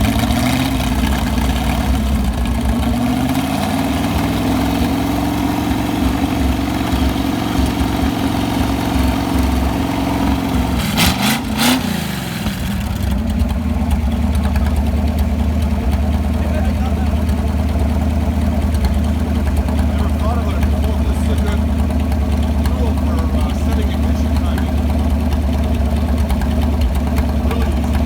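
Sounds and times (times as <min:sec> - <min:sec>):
car engine fast idle: 0:00.0 - 0:28.0.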